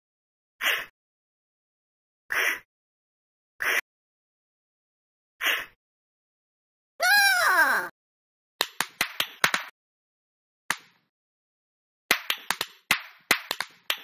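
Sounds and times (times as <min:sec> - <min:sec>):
sharp slap-like smacks: 0:08.6 - 0:09.7, 0:10.7 - 0:11.0, 0:12.1 - 0:14.0.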